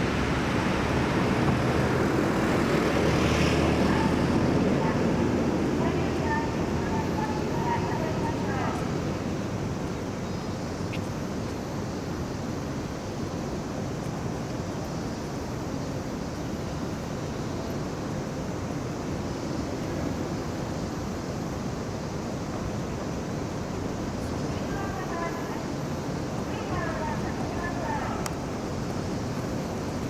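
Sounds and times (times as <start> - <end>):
steady rushing noise: 0.0 - 10.1.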